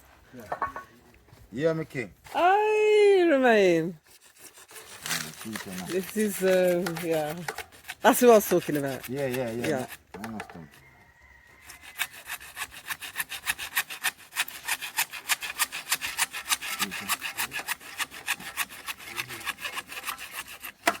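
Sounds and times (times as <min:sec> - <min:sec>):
hacksaw cutting pipe: 0:04.0 - 0:10.8, 0:11.6 - 0:21.0.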